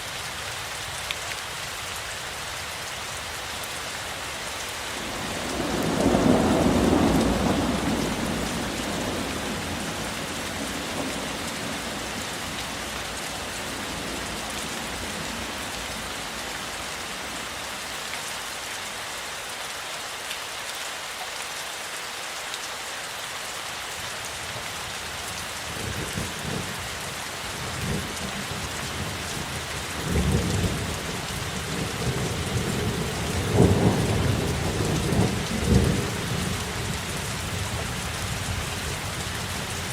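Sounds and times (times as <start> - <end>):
heavy rain falling: 0.0 - 39.9
thunder rumbling: 5.1 - 12.8.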